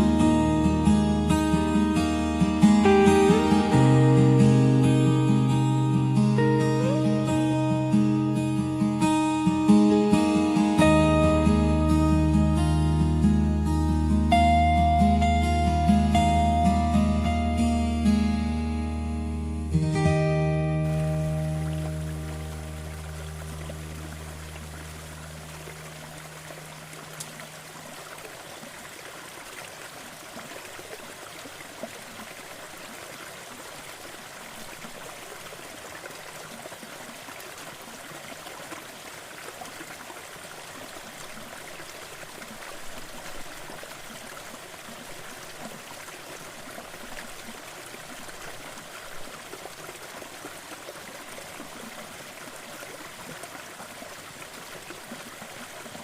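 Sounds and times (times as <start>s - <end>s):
waterfall rushing: 0.0s - 19.0s, 19.6s - 32.7s
low guitar note: 0.0s - 26.1s.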